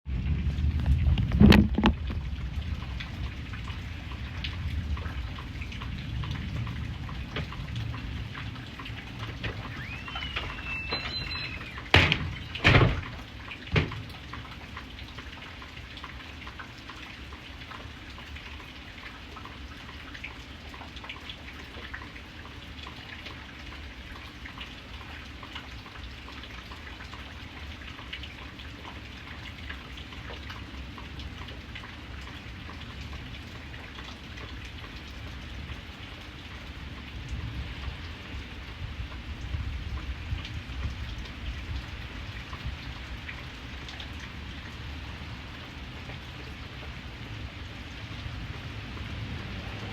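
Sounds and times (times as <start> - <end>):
raindrops ticking on a surface: 0.1 - 49.9
steady rain falling: 0.1 - 49.9
sharp loud knocks: 11.9 - 14.1.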